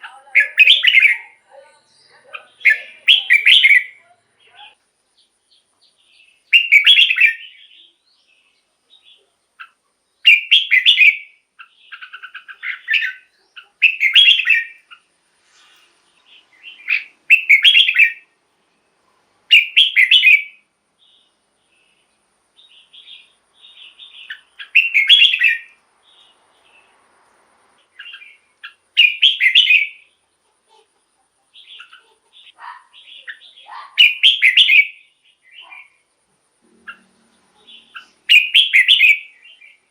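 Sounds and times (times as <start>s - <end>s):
bird bubbling song phrases: 0.0s - 4.8s, 16.6s - 18.2s, 31.5s - 36.0s
soft bird chattering: 0.0s - 18.3s, 19.5s - 26.9s, 27.8s - 39.9s.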